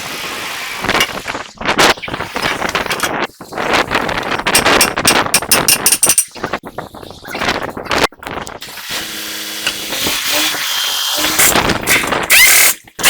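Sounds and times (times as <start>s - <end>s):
power tool running: 8.6s - 13.0s.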